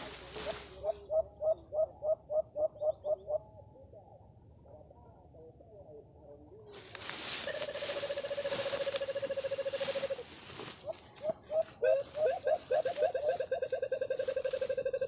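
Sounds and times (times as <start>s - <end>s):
bird calling: 7.3s - 15.0s.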